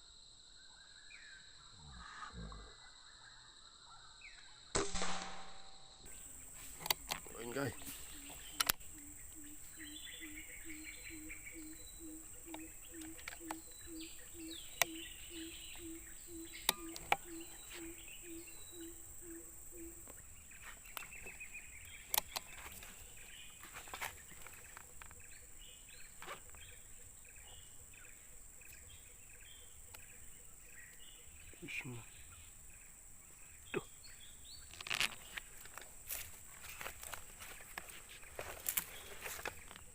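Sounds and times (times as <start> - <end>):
small birds chirping: 6.0 - 39.9
bird hooting: 6.1 - 20.4
sharp clicks: 6.8 - 8.9, 12.5 - 13.7, 16.4 - 17.4, 22.1 - 22.6.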